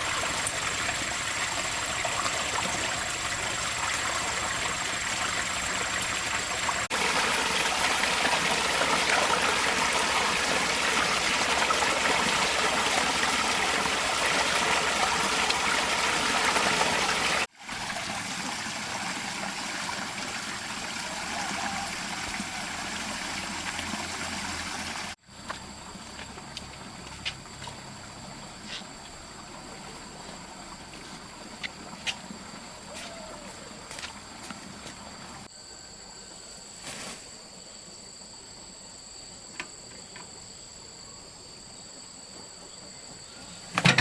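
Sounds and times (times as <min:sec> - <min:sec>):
rushing water: 0:00.0 - 0:25.2, 0:26.6 - 0:35.5.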